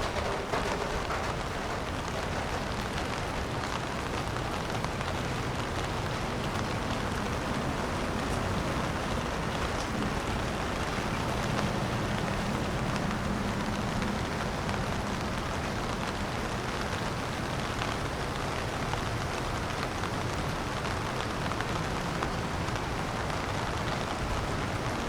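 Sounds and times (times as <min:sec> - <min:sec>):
steady rain on street: 0:00.0 - 0:25.0
traffic: 0:00.0 - 0:25.0.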